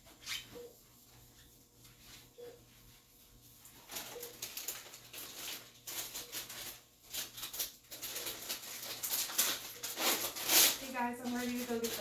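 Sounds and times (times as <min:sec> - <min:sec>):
packaging crinkling and rustling: 0:03.7 - 0:12.0.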